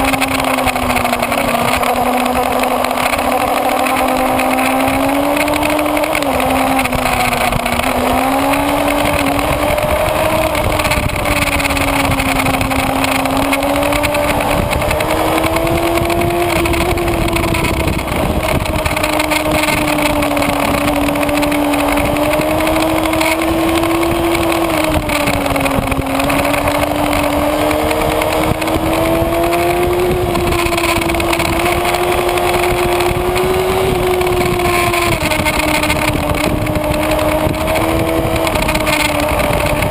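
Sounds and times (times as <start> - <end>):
motorcycle engine at high revs: 0.0 - 39.9
steady rush of noise: 0.0 - 39.9.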